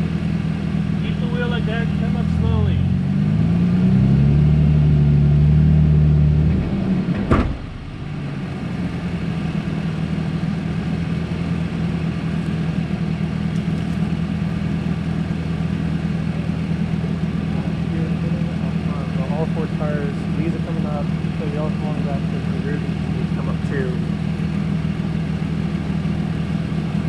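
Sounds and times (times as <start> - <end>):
off-road vehicle engine revving: 0.0 - 27.0
sharp knock: 6.6 - 7.9.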